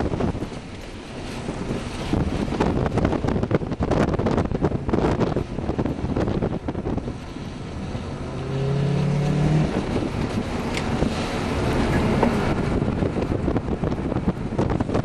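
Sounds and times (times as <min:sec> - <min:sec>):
wind buffeting microphone: 0:00.0 - 0:15.0
car engine revving: 0:06.8 - 0:12.1.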